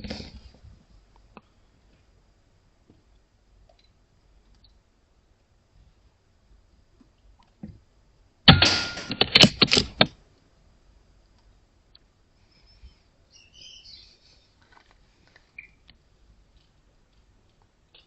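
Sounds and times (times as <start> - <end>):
faint high chirps: 12.4 - 14.6, 15.5 - 15.9.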